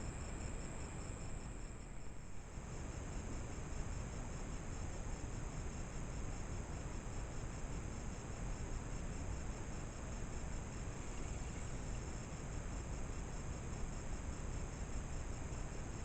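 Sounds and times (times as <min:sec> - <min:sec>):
insects trilling: 0:10.7 - 0:12.4.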